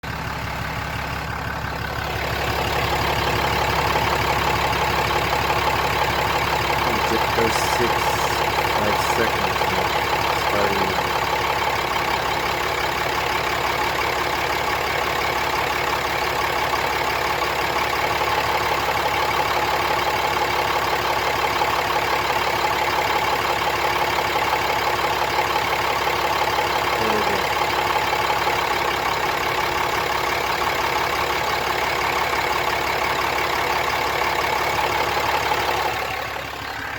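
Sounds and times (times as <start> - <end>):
engine idling with rattle: 0.0 - 36.9.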